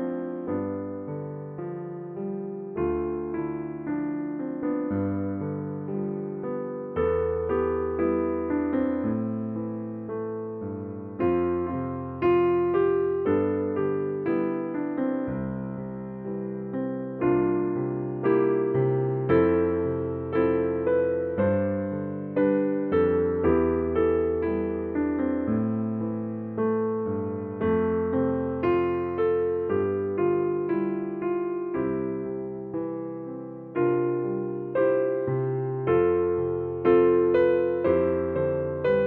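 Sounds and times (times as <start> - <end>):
slow piano music: 0.0 - 39.0.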